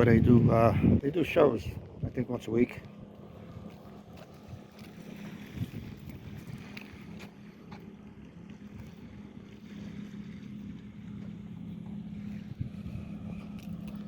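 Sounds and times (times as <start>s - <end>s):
wind noise on microphone: 0.0s - 2.5s, 4.4s - 7.2s, 12.4s - 14.0s
low engine hum: 0.0s - 14.0s.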